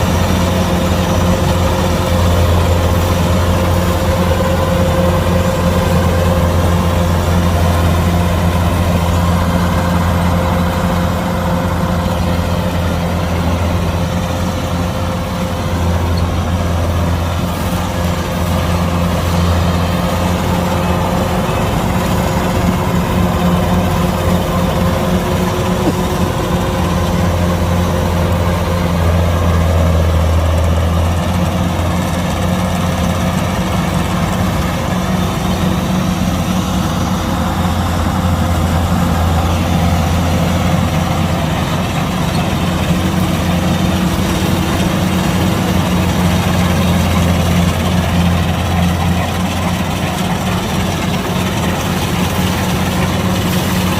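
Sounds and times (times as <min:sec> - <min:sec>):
diesel engine humming: 0:00.0 - 0:53.9.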